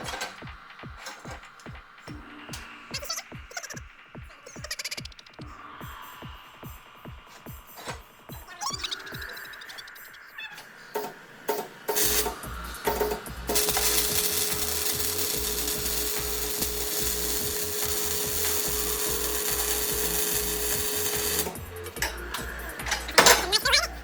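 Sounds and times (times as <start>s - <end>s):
background music with low beat: 0.0s - 10.1s, 11.6s - 24.0s
metal tool hissing with held tone: 6.0s - 24.0s.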